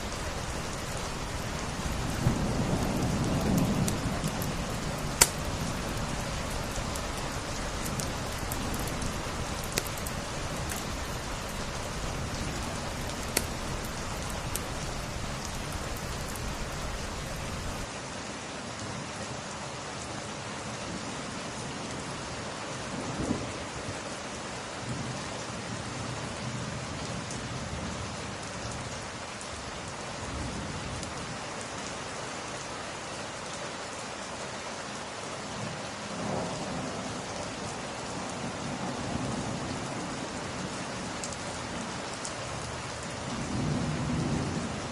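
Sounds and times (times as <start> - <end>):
low rolling rumbles: 0.0 - 17.9
wood fire crackling: 0.0 - 17.9
heavy rain: 0.0 - 44.9.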